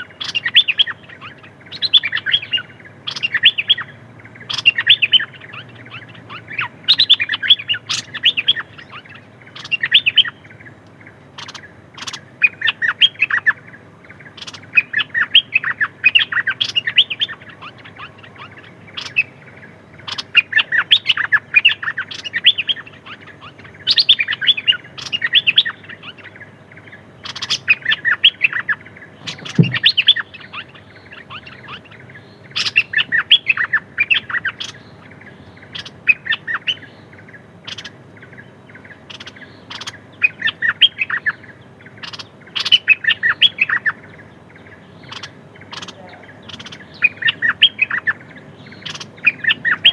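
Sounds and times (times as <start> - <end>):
songbird chirping: 0.0 - 49.9
low thump: 29.2 - 30.0.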